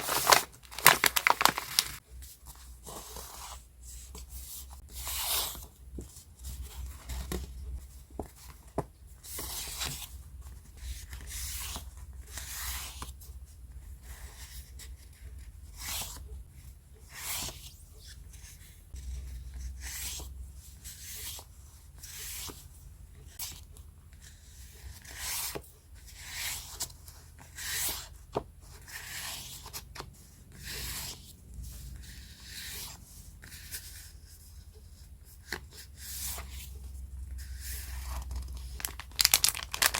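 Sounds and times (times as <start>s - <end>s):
paper rustling: 0.0s - 3.4s, 37.4s - 39.9s.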